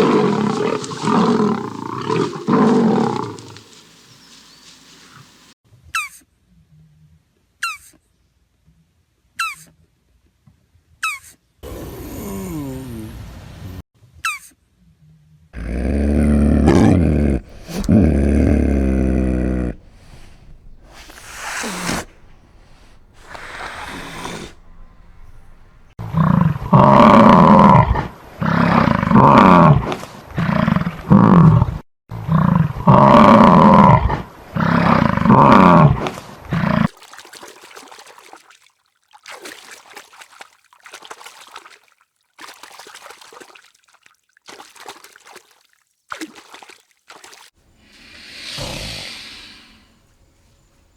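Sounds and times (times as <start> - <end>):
loud animal calls: 0.0 - 5.5, 15.6 - 25.9.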